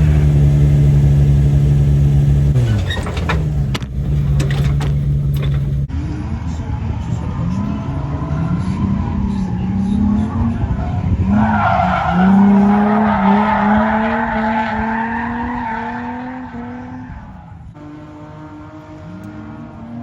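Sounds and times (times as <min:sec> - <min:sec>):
car engine revving high: 0:00.0 - 0:02.8, 0:05.9 - 0:20.0
tire squealing: 0:00.0 - 0:20.0.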